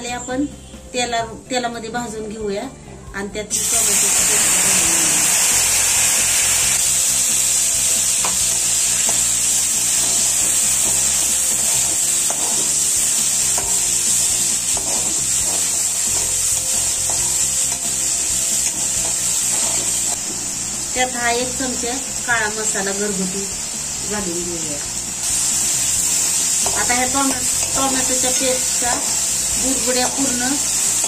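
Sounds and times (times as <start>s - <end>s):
tomato puree sizzling in hot oil: 3.5s - 31.0s
metal spoon scraping a pan: 8.1s - 20.2s.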